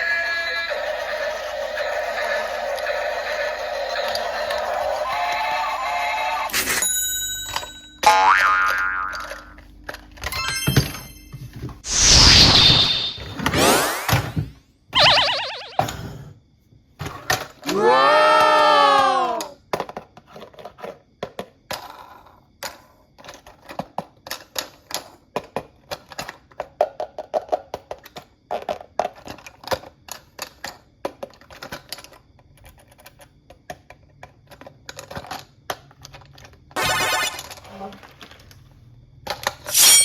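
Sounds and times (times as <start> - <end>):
cartoon boing sound effect: 8.0 - 9.3, 15.0 - 15.9
plastic toy pieces clicking: 8.7 - 10.3, 19.4 - 36.6.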